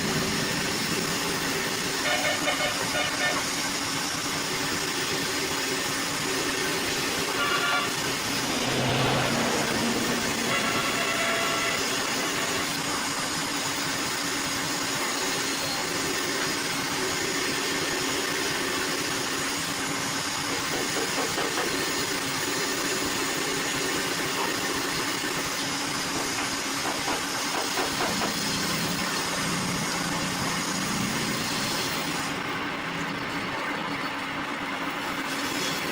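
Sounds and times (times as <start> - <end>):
woodworking machine running: 3.9 - 14.4.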